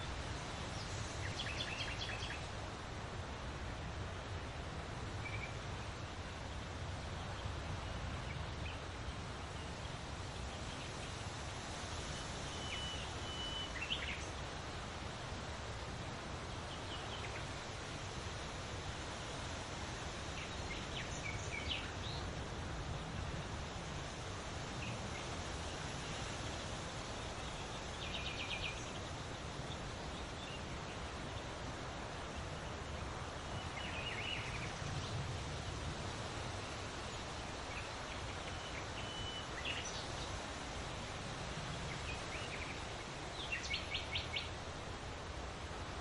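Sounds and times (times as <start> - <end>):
outdoor background noise: 0.0 - 46.0.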